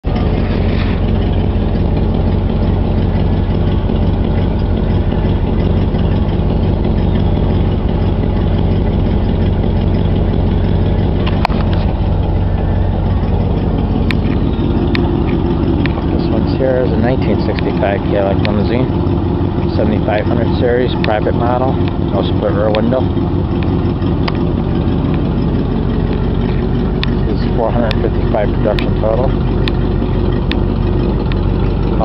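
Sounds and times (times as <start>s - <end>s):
car engine idling: 0.0s - 32.0s
sharp clicks: 29.6s - 29.8s.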